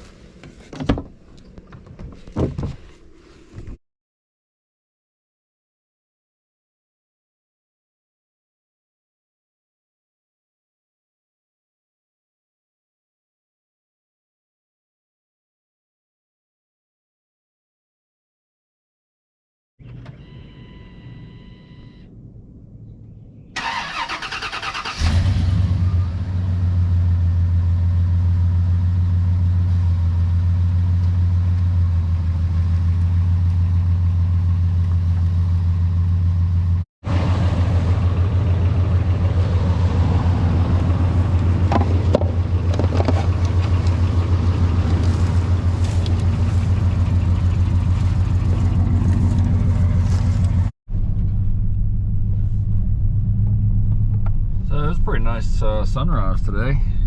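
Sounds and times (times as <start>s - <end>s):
engine running: 19.8s - 57.0s
engine cranking: 23.6s - 25.4s, 40.6s - 51.6s.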